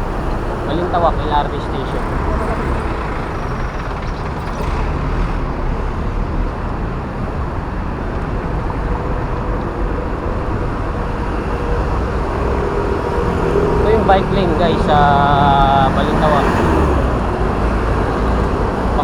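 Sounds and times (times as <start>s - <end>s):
faint engine hum: 0.0s - 19.0s
road traffic rumble: 0.0s - 19.0s.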